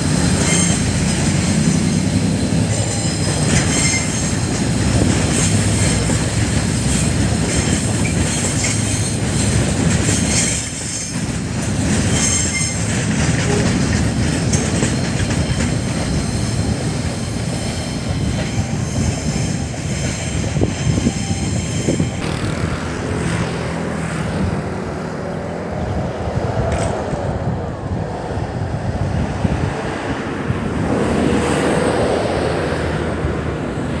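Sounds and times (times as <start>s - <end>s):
freight train rumble and clatter: 0.0s - 34.0s
wheel squeal: 0.3s - 4.5s, 5.4s - 11.3s, 12.1s - 13.7s.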